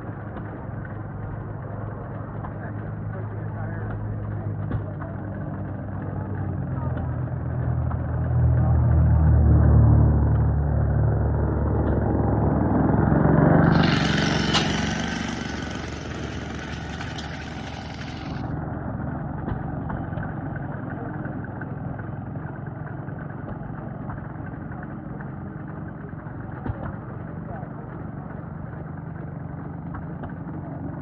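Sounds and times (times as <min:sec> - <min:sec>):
small tractor engine running: 0:00.0 - 0:09.1, 0:10.2 - 0:31.0
hissing noise: 0:13.6 - 0:18.4.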